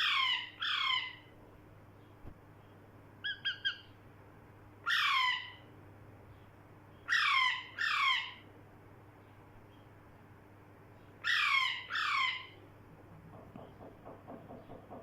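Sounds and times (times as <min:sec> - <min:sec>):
parrot squawking: 0:00.0 - 0:01.2, 0:04.8 - 0:05.6, 0:07.1 - 0:08.4, 0:11.2 - 0:12.6.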